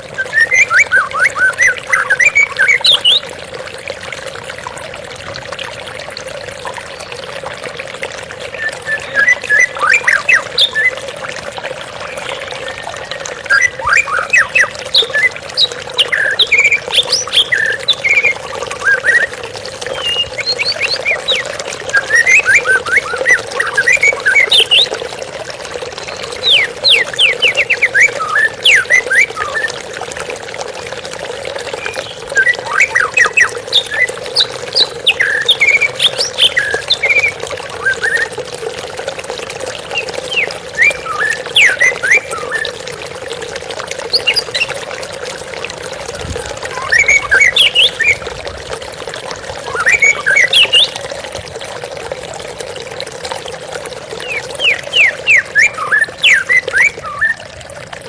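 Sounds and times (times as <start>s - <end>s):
flowing water: 0.0s - 58.0s
bird singing whistles and chirps: 0.1s - 3.2s, 8.5s - 11.0s, 12.0s - 25.0s, 26.0s - 29.8s, 31.8s - 38.3s, 40.0s - 42.8s, 46.7s - 48.2s, 49.6s - 51.0s, 54.2s - 57.4s.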